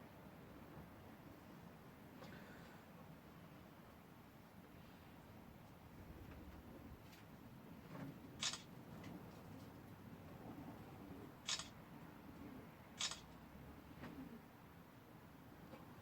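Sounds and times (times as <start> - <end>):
camera shutter clicking: 8.4 - 8.7, 11.5 - 11.7, 13.0 - 13.3.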